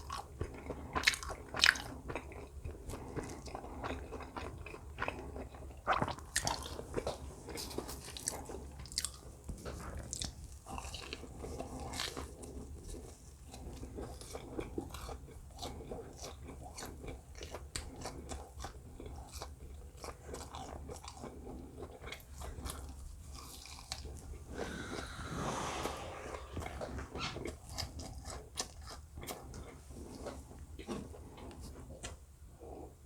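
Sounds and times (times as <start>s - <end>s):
noisy rush: 24.5s - 27.5s.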